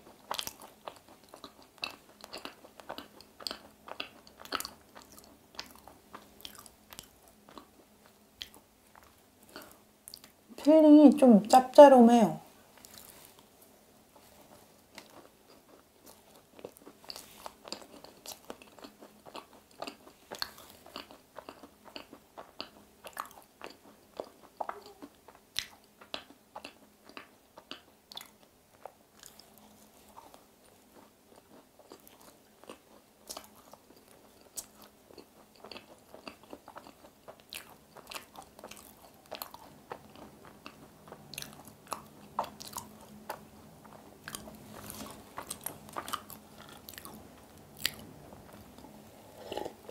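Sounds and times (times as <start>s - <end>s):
chewing crisp macaron: 0.0s - 10.4s, 12.8s - 49.9s
soft mouth sounds: 24.2s - 30.4s, 47.8s - 49.9s.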